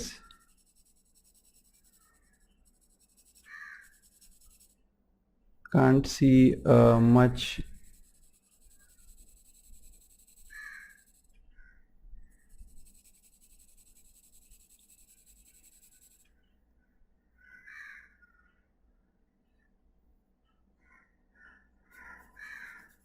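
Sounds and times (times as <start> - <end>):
crows cawing faintly: 1.8 - 2.6, 3.2 - 4.2, 10.3 - 11.9, 17.3 - 18.7, 20.8 - 23.0.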